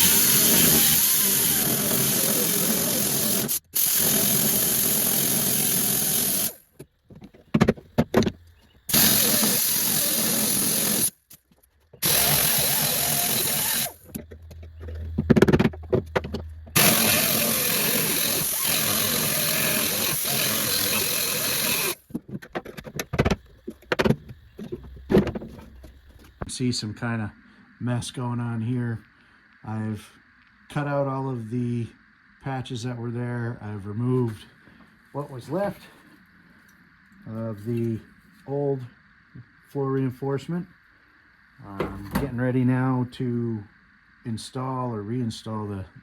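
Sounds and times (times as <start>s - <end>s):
power cutting tool cutting metal: 0.0s - 6.6s, 8.9s - 11.2s, 12.0s - 14.2s, 16.8s - 22.1s.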